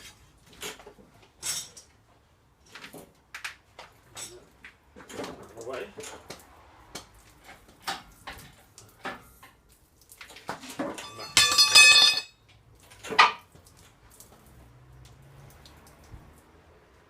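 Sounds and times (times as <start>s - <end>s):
metal parts knocking and clinking: 10.8s - 12.3s
ringing metallic clang: 11.0s - 12.3s.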